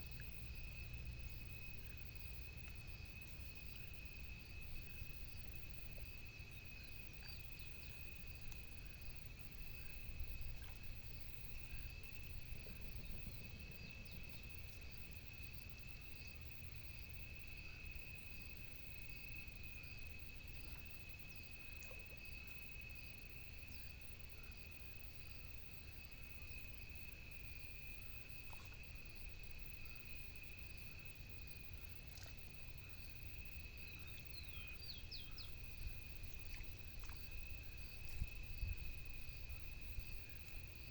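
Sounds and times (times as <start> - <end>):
faint chirps: 0.0 - 24.7, 26.0 - 40.9
insect trill: 0.0 - 40.9
low steady rumble: 0.0 - 40.9.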